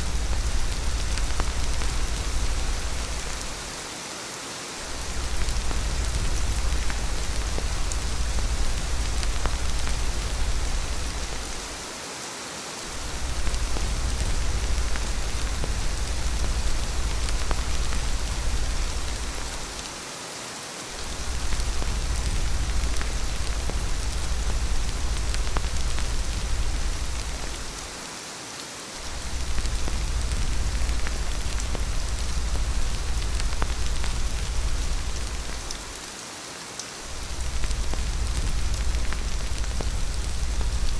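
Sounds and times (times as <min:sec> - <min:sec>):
low rumble: 0:00.0 - 0:03.7, 0:05.0 - 0:11.8, 0:13.0 - 0:19.8, 0:21.0 - 0:27.8, 0:29.1 - 0:35.8, 0:37.1 - 0:40.9
rain falling: 0:00.0 - 0:40.9.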